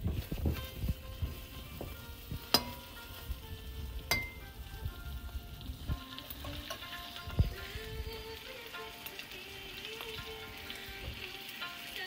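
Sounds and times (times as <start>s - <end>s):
chicken sizzling in hot oil: 0.0s - 12.0s
metal spatula clinking on pot: 2.4s - 3.3s, 4.1s - 4.6s, 6.4s - 7.1s.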